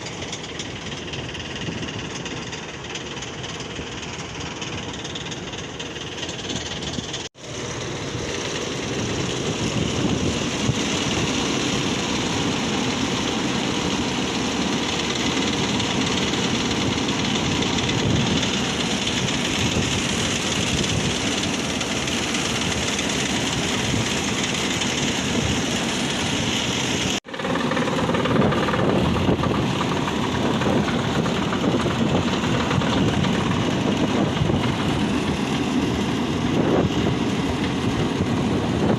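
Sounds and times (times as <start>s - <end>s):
exhaust fan rumble: 0.0s - 38.9s
wind blowing over microphone: 8.4s - 13.1s, 16.0s - 21.8s, 22.5s - 38.9s.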